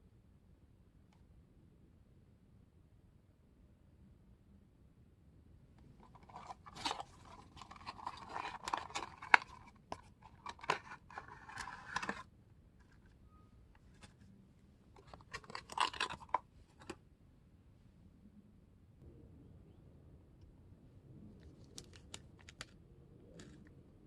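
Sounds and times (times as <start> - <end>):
packaging crinkling and tearing: 6.0 - 12.2, 15.0 - 16.9.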